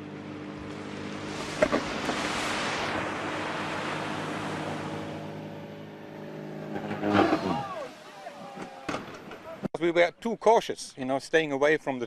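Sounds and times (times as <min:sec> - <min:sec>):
small aircraft engine droning: 0:00.0 - 0:08.2
rushing noise: 0:00.9 - 0:09.4.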